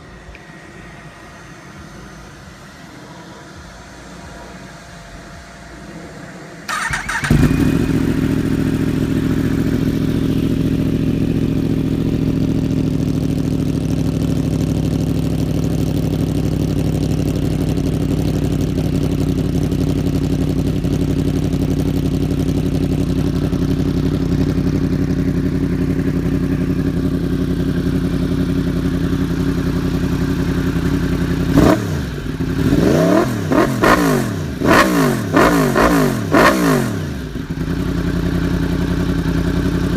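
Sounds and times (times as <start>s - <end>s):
motorcycle engine idling: 0.0s - 39.9s
motorcycle engine revving: 5.8s - 39.9s
motorcycle engine cranking: 6.7s - 8.8s.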